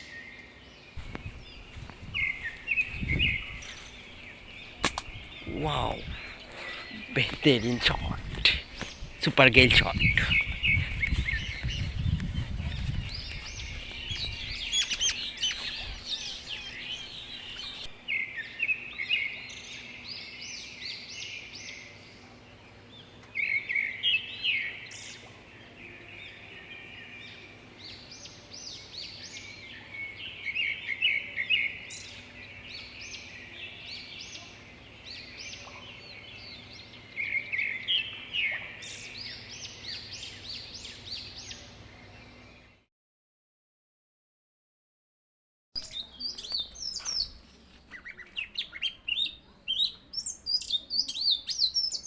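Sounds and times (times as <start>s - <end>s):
small birds chirping: 0.0s - 18.4s, 45.8s - 52.0s.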